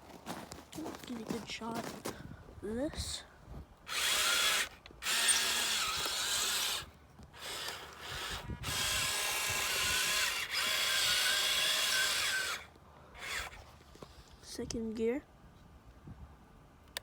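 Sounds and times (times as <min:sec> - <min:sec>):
toy truck motor whining: 0:03.9 - 0:13.8.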